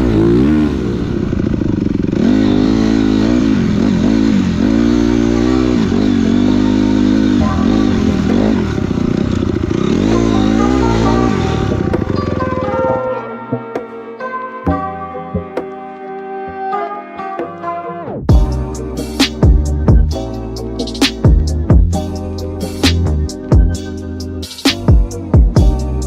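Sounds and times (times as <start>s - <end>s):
dirt bike engine revving: 0.0s - 12.9s.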